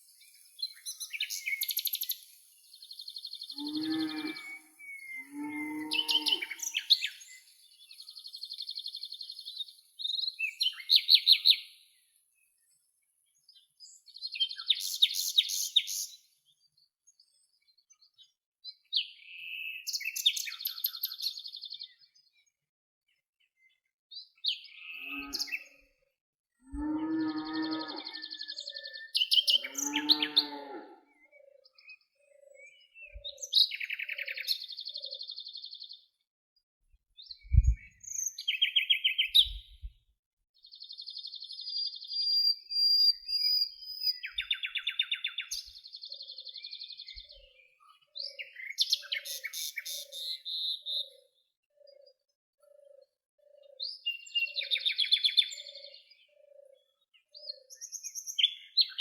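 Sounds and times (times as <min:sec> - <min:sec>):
songbirds singing: 0:00.0 - 0:59.0
low thud: 0:37.5 - 0:37.9
soft low repeating note: 0:37.5 - 0:37.9.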